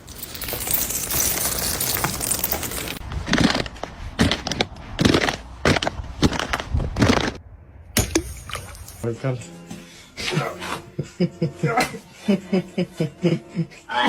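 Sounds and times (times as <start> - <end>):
ice clinking and cracking: 0.0 - 3.0, 8.0 - 9.0.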